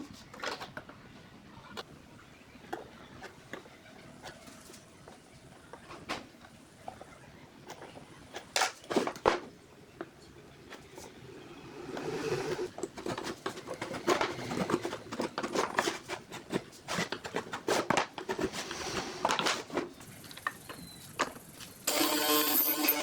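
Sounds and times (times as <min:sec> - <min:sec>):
music: 0:21.9 - 0:23.0.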